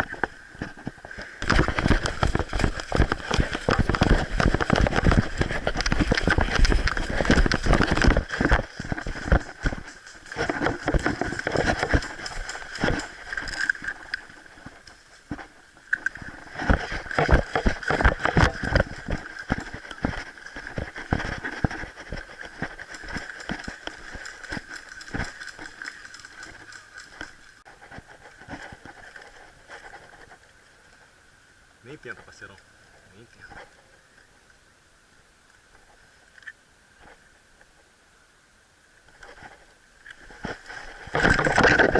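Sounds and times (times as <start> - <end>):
footsteps crunching through dry leaves: 1.7 - 15.4.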